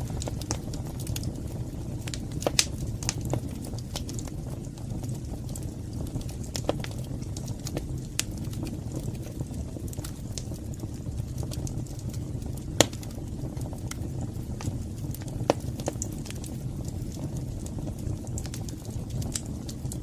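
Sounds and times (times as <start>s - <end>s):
fire crackling and popping: 0.0s - 20.0s
fire rumbling: 0.0s - 20.0s.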